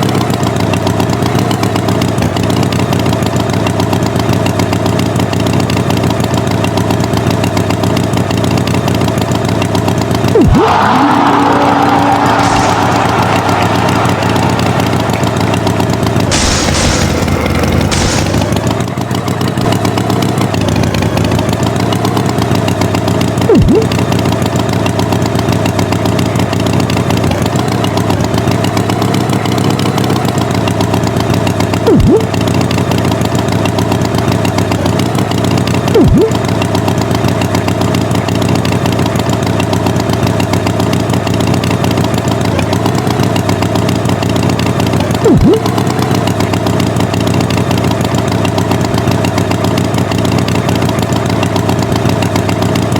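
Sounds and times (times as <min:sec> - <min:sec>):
tractor engine running: 0:00.0 - 0:52.9
short engine blips: 0:10.1 - 0:37.4, 0:42.4 - 0:52.9.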